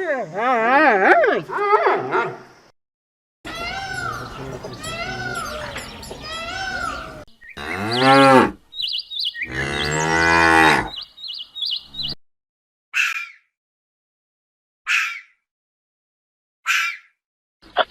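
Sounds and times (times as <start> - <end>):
higher-pitched animal calls: 3.5 - 8.5.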